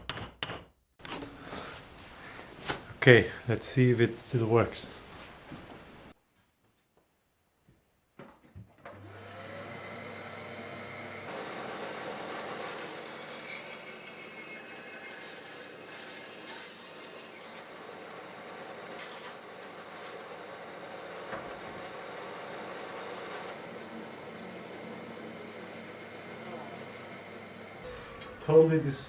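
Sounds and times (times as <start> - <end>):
bandsaw motor running: 9.0 - 27.9.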